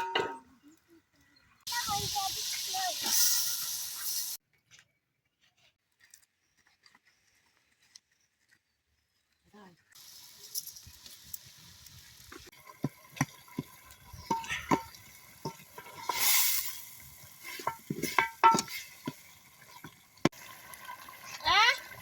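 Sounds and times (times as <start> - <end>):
hissing sizzle: 1.7 - 4.4, 10.0 - 22.0.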